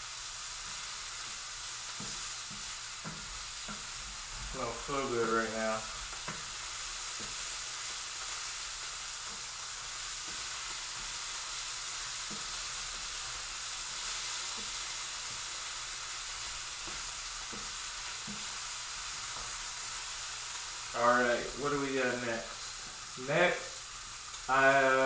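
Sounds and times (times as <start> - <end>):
chicken sizzling in a skillet: 0.0 - 25.0
utensil tapping: 16.8 - 18.5.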